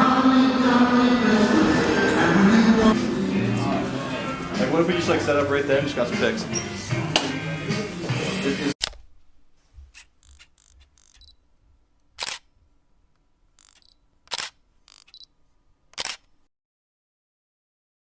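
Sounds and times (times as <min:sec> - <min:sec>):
music: 0:00.0 - 0:08.8
camera shutter clicks: 0:12.2 - 0:12.5, 0:13.6 - 0:15.2, 0:16.0 - 0:16.3.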